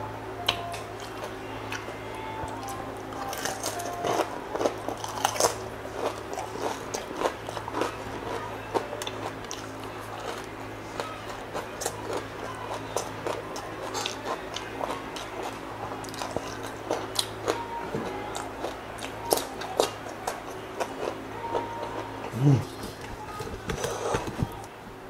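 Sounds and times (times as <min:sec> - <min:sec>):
steady low hum: 0:00.0 - 0:25.0
crunching crispy skin: 0:03.2 - 0:17.3.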